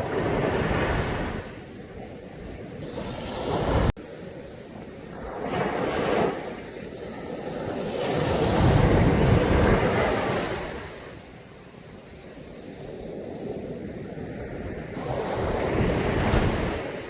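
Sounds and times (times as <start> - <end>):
sea waves breaking on a beach: 0.0 - 17.0.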